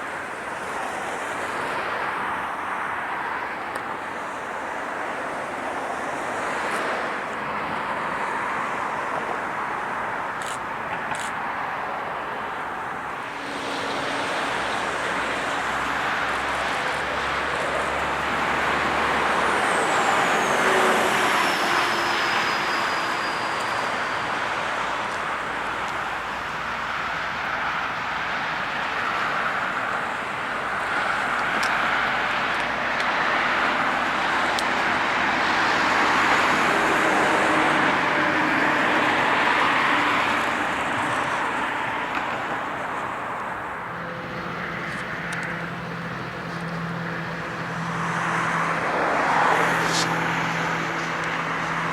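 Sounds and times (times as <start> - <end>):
passing vehicles rolling: 0.0 - 51.9
high squeal sliding down: 18.5 - 25.6.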